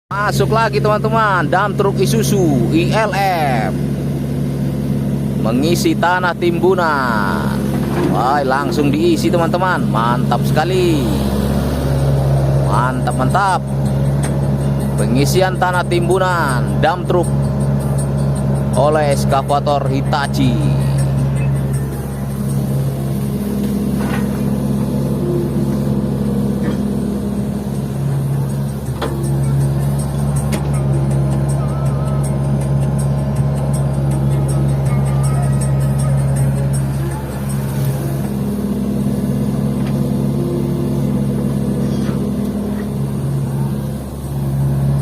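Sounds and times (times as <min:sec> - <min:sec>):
diesel engines running: 0:00.1 - 0:45.0.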